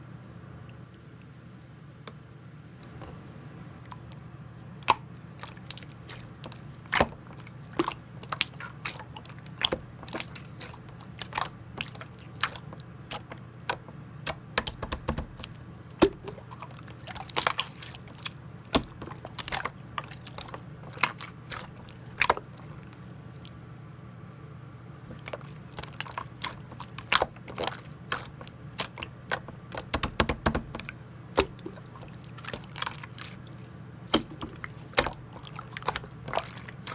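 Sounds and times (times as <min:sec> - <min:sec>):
steady low hum: 0:00.0 - 0:36.9
slime squeezed by hand: 0:25.0 - 0:36.9.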